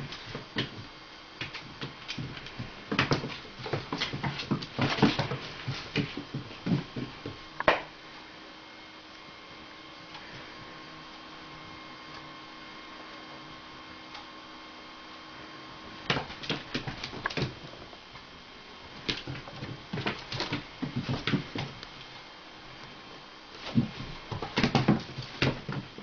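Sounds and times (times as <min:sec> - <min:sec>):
electrical hum: 0:00.0 - 0:26.0
paws skittering on hard floor: 0:01.4 - 0:07.4, 0:16.1 - 0:17.8, 0:19.0 - 0:21.8.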